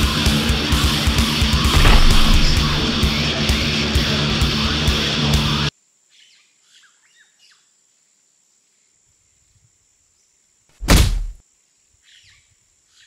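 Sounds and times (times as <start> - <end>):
loud sudden thump: 1.7 - 3.3, 10.8 - 11.4.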